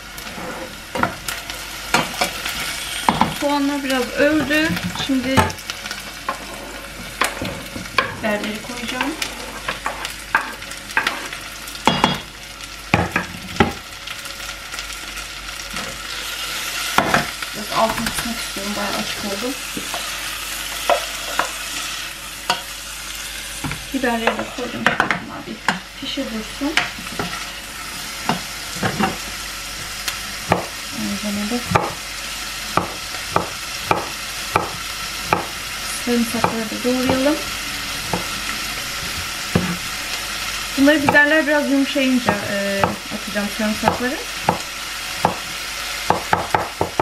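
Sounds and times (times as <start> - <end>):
onions sizzling in oil: 0.0 - 47.0
knife chopping on wooden board: 31.7 - 32.0, 32.8 - 35.6, 45.2 - 45.4, 46.1 - 47.0.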